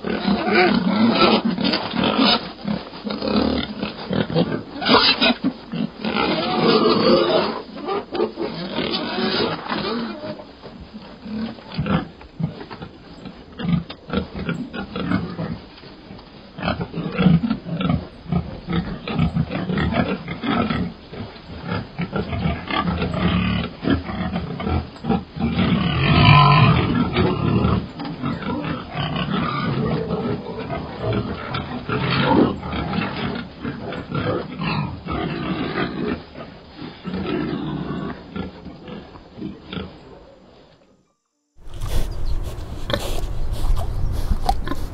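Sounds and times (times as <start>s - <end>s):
piglets grunting: 0.0s - 2.5s, 3.2s - 10.4s, 22.2s - 38.6s, 41.6s - 44.9s.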